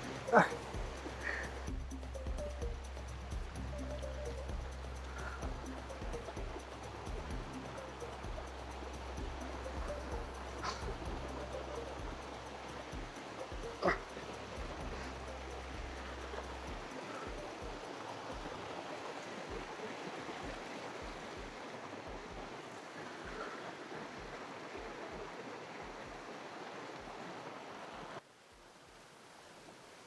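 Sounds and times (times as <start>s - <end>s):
low thumps: 0.0s - 12.3s
stream rushing over rocks: 16.2s - 28.2s.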